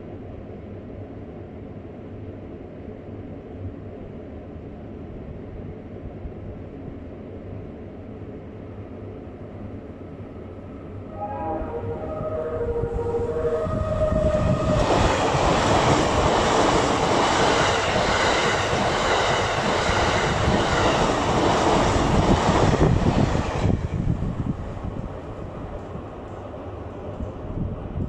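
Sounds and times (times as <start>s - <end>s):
train wheels rushing on rail: 10.2s - 28.0s
train melody horn: 10.9s - 15.4s.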